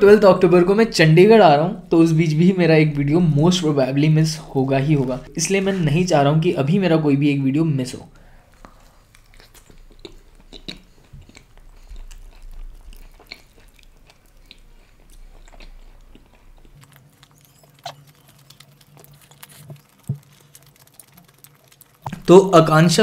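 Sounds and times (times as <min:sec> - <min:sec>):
person chewing food: 0:08.1 - 0:22.3.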